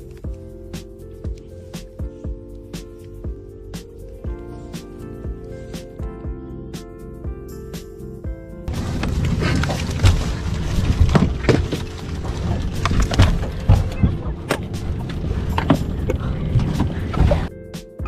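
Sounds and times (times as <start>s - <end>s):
background music: 0.0s - 18.0s
loud dense rumbling: 8.7s - 17.5s.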